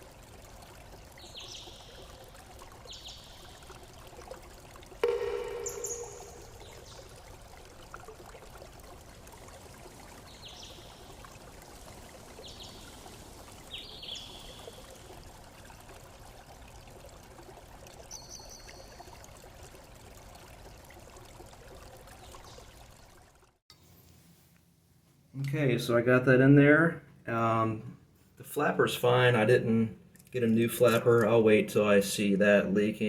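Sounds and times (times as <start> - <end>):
water trickling and pouring: 0.0 - 23.6, 30.2 - 31.9.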